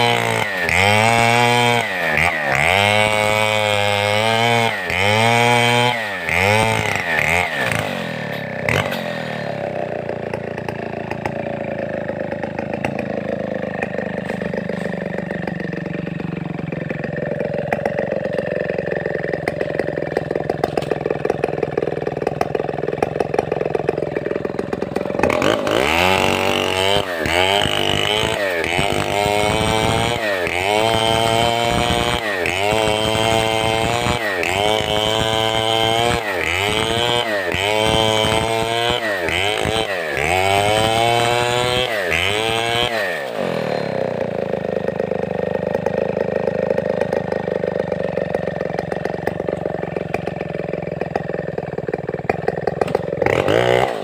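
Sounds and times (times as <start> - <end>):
chainsaw idling and revving: 0.0 - 54.0.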